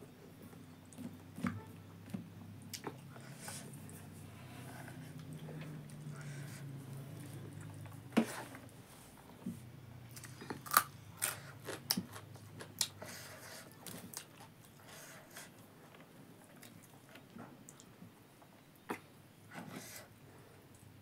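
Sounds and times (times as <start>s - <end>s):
person chewing food: 10.1s - 18.0s.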